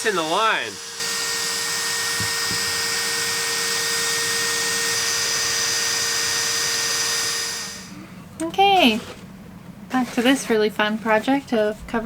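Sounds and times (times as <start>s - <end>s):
electric drill running steadily: 0.0s - 8.0s.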